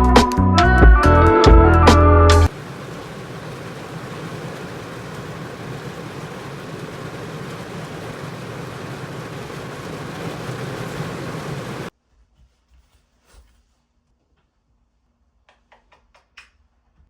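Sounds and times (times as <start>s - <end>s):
heavy rain pouring: 2.4s - 11.9s.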